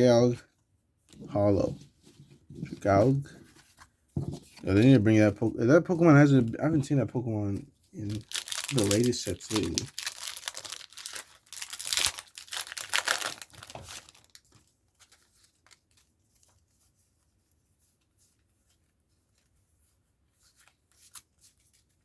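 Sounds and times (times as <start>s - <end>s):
foil wrapper tearing and crinkling: 8.0s - 14.4s
cards clicking and rustling: 8.0s - 16.0s.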